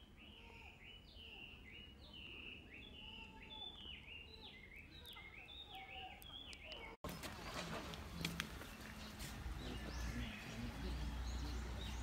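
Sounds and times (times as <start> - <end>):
high bird chirps: 0.0 - 12.0.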